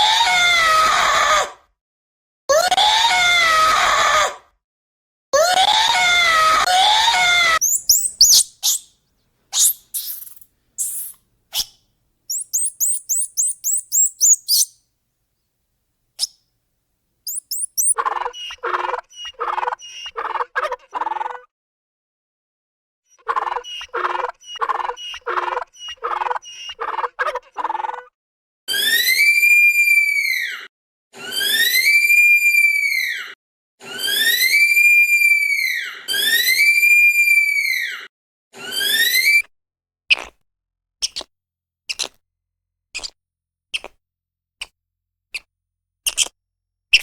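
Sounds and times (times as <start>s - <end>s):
bird chirps and twitters: 7.6s - 8.9s, 9.6s - 11.7s, 12.3s - 14.8s, 17.3s - 18.0s
repeated animal call: 7.6s - 8.9s, 9.6s - 11.7s, 12.3s - 14.7s, 17.3s - 18.0s.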